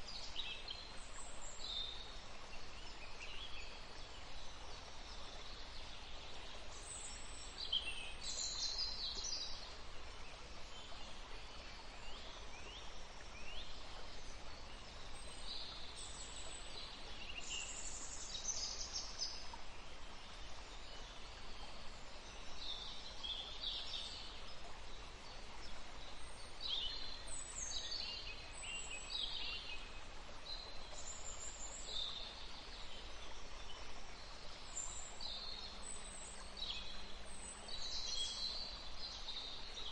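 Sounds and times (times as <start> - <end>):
river flowing: 0.0 - 39.9
songbirds singing: 0.0 - 39.9.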